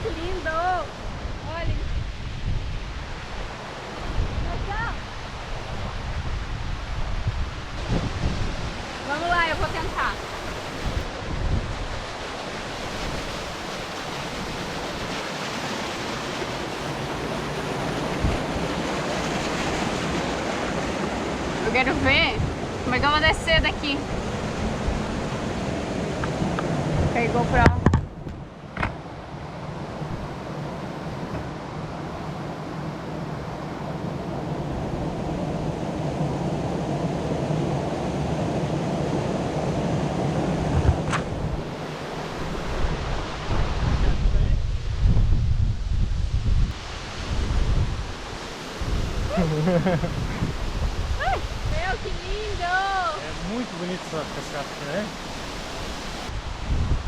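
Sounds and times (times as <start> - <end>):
wind buffeting microphone: 0.0 - 57.0
waterfall roaring: 7.0 - 27.7, 46.7 - 56.4.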